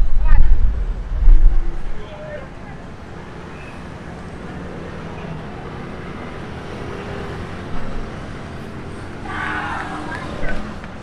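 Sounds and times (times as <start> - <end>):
fluctuating low rumble: 0.0 - 2.1.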